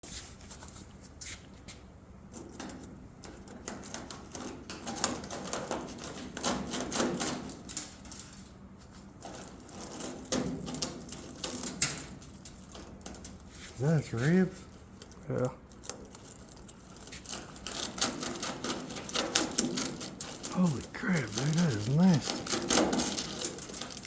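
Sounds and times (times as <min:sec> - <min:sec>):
dry material clicking and rustling: 0:00.4 - 0:24.0
rubbing: 0:15.7 - 0:24.0.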